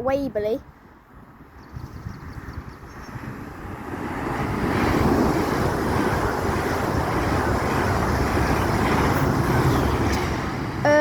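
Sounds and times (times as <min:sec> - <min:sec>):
electric train rushing past: 0:02.4 - 0:11.0.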